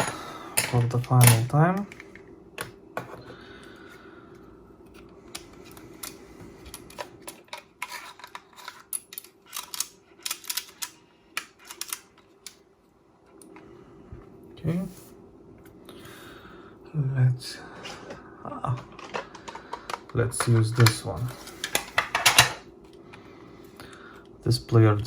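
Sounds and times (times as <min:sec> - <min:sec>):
faint steady hum: 0:00.0 - 0:25.0
plastic cassette cases clicking: 0:18.8 - 0:21.0.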